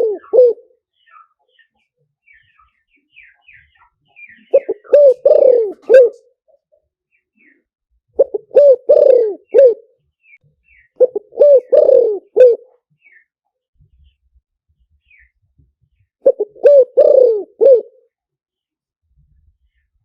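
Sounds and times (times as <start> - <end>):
dove cooing: 0.0 - 0.8, 4.4 - 6.4, 8.2 - 9.9, 11.0 - 12.8, 16.2 - 18.1
faint small-bird chirps: 0.2 - 5.0, 6.1 - 7.7, 9.5 - 11.0, 12.7 - 16.2, 18.5 - 20.0.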